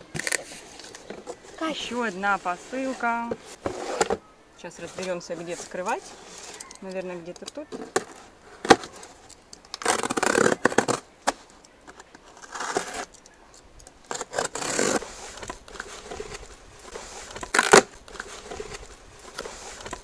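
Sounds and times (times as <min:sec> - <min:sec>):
packaging tearing and crackling: 0:05.6 - 0:11.4, 0:12.0 - 0:20.0.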